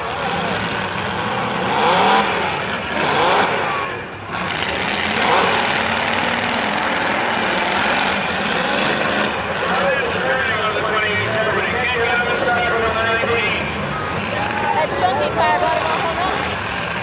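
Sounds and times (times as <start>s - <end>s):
car engines revving hard: 0.0s - 17.0s.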